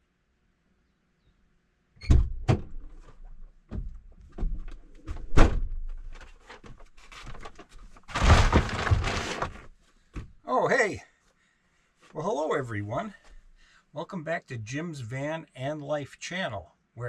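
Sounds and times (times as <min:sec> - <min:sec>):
knocks thuds and clunks: 0:02.0 - 0:10.4.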